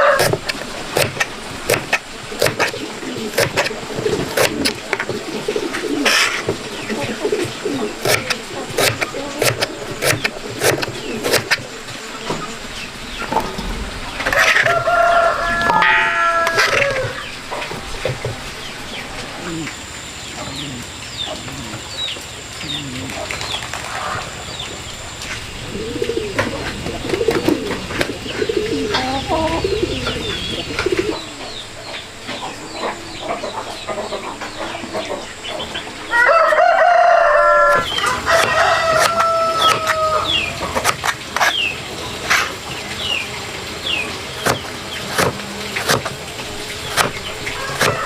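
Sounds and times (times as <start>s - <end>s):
rooster crowing: 0.0s - 0.3s, 14.2s - 17.3s, 36.1s - 40.5s, 47.4s - 48.0s
small birds chirping: 0.0s - 13.9s, 17.0s - 36.2s, 37.6s - 48.0s
hens clucking: 0.0s - 48.0s.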